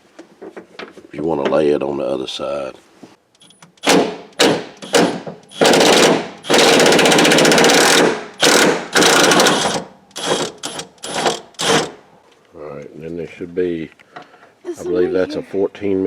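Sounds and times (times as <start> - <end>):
impact wrench hammering: 3.8 - 12.0.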